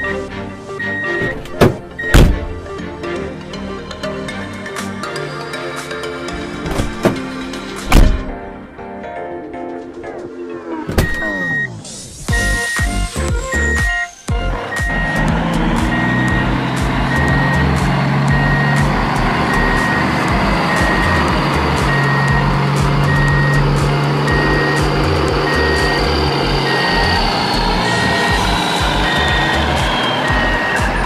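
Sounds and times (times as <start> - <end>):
truck reversing alarm beeping: 0.8 - 2.6, 11.0 - 31.0.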